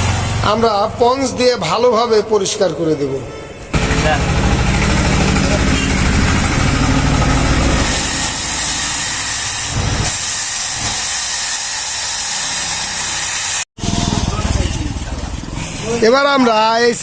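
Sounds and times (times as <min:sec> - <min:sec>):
low mechanical rumble: 0:00.0 - 0:10.2.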